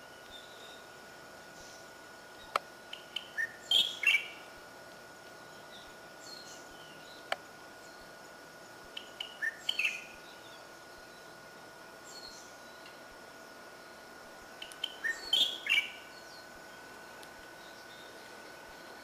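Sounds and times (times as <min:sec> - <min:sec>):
songbird chirping: 0:00.0 - 0:04.6, 0:05.2 - 0:19.0.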